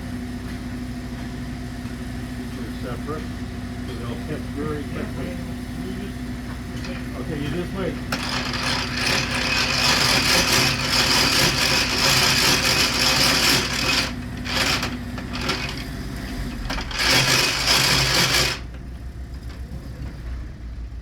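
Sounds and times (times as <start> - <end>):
machinery clattering: 6.5 - 18.8.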